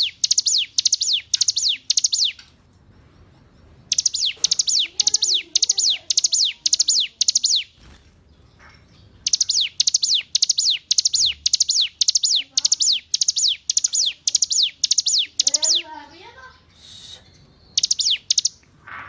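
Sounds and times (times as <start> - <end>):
bird singing sharp high notes: 0.0 - 2.4, 3.9 - 8.0, 9.2 - 16.0, 16.8 - 18.6.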